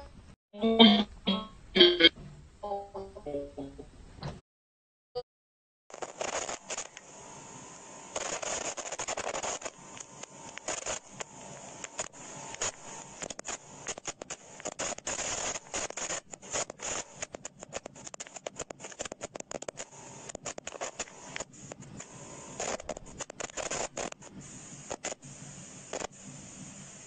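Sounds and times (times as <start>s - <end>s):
crackling static with clicks: 5.9s - 27.0s
faint steady whine: 5.9s - 27.0s.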